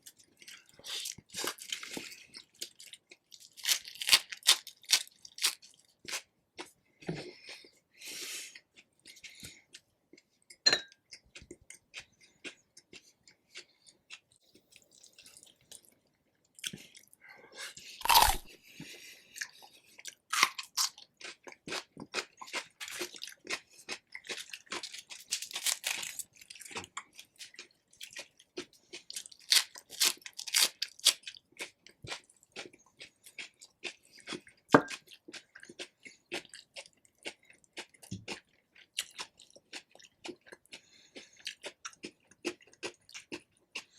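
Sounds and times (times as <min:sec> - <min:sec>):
chewing and crunching chicken: 0:00.0 - 0:43.9.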